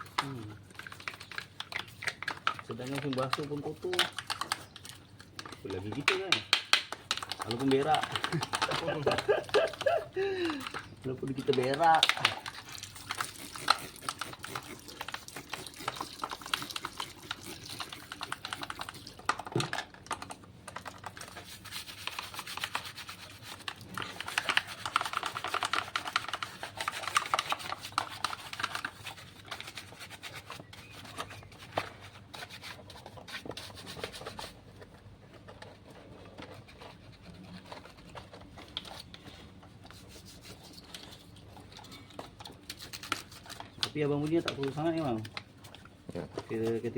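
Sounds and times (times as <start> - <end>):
scrubbing and scraping: 7.2 - 19.2.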